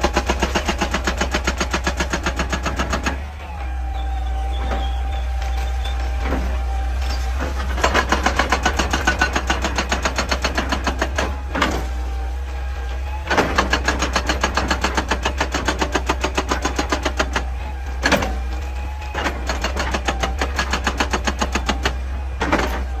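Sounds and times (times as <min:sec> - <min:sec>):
excavator engine drone: 0:00.0 - 0:23.0
hydraulic breaker hammering rock: 0:00.0 - 0:23.0.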